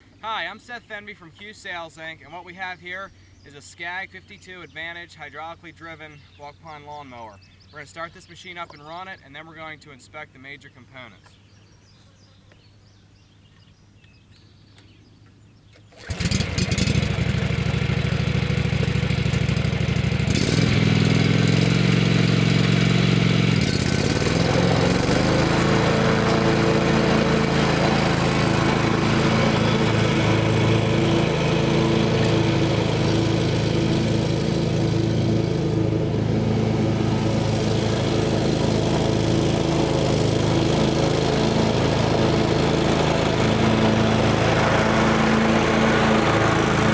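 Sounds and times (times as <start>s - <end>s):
mower engine starting and running: 15.8s - 46.9s.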